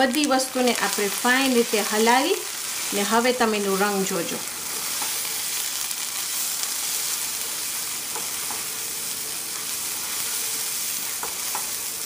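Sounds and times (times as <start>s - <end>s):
paste sizzling in a frying pan: 0.0s - 12.0s
spatula stirring in pan: 4.5s - 12.0s.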